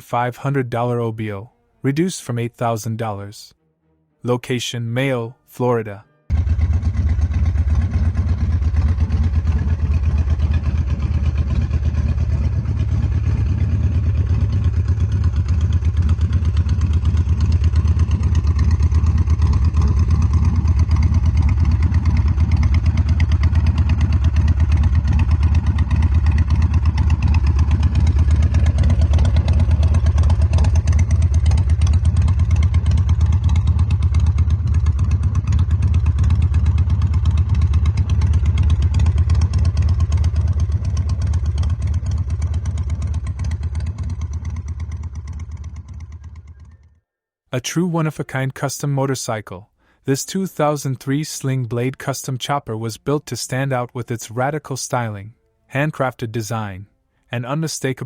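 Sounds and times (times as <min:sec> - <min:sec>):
motorcycle engine running steadily: 0:06.3 - 0:47.1.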